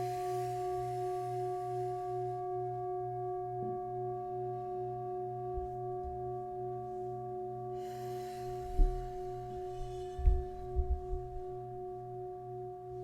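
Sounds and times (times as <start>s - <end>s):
soft hiss: 0.0s - 2.4s, 7.8s - 12.2s
singing bowls ringing: 0.0s - 12.9s.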